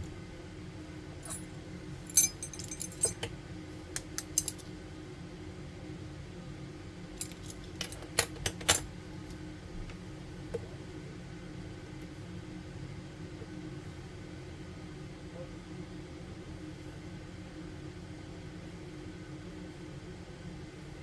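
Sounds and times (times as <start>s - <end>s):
small tools clicking and clinking: 1.2s - 1.4s, 2.1s - 3.3s, 4.0s - 4.6s, 7.2s - 8.9s
steady low hum: 1.2s - 3.3s.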